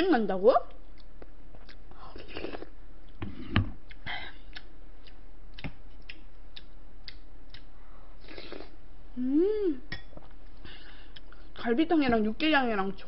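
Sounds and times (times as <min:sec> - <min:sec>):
person chewing with wet clicks: 0:00.7 - 0:03.2, 0:03.8 - 0:07.8, 0:10.1 - 0:11.5
slurp: 0:08.2 - 0:08.8
person humming mm: 0:08.2 - 0:09.9.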